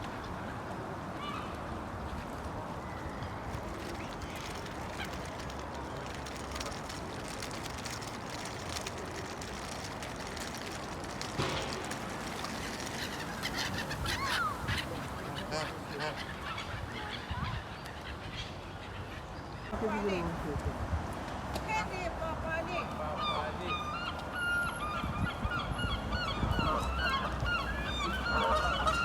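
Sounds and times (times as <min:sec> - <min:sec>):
waterfowl calling: 0:11.4 - 0:18.2, 0:23.2 - 0:29.0.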